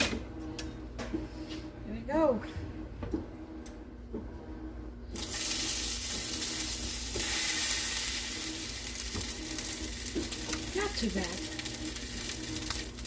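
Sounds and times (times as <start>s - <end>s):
meat sizzling in hot oil: 5.2s - 13.0s.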